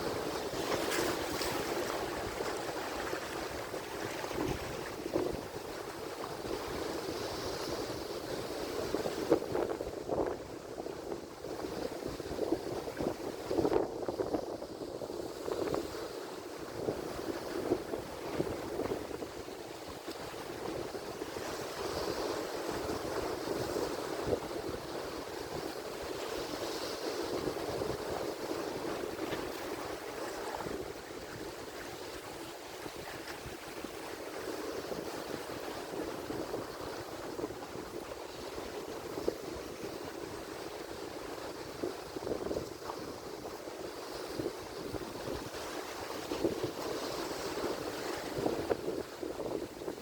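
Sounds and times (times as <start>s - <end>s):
ocean waves washing in: 17.5s - 38.1s.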